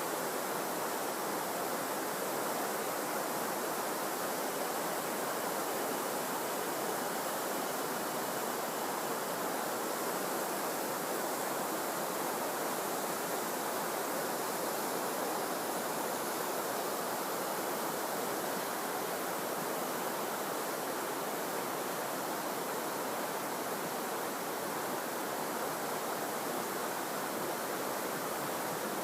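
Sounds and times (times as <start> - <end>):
stream rushing: 0.0 - 29.0.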